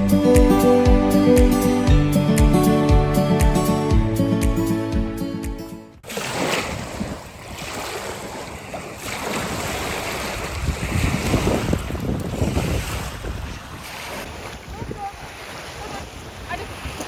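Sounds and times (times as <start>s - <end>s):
background music: 0.0s - 6.0s
wind buffeting microphone: 6.6s - 17.0s.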